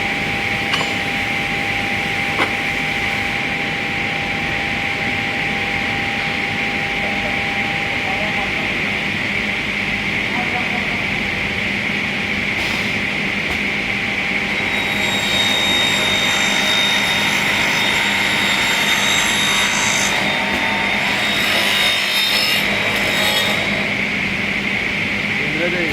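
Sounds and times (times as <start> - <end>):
rip saw machine humming: 11.1 - 25.9.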